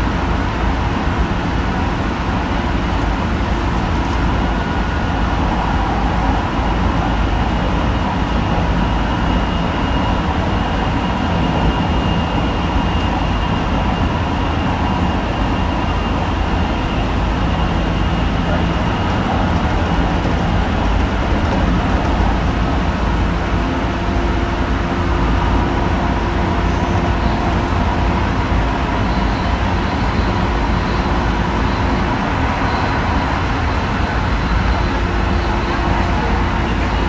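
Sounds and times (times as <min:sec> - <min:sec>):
train wheels rumbling on rail: 0:00.0 - 0:37.0
high hiss: 0:26.4 - 0:37.0.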